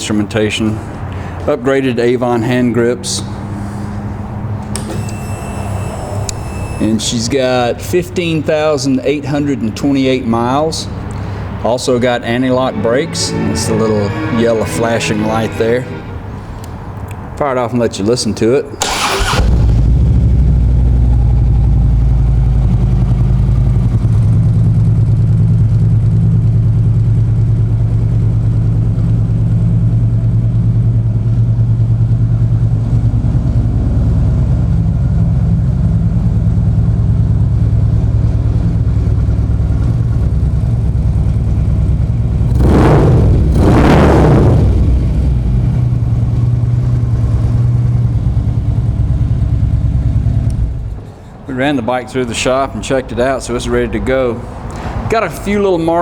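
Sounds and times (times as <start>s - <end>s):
motorcycle engine idling: 20.0s - 42.6s, 44.9s - 51.0s
motorcycle engine revving: 38.2s - 51.0s.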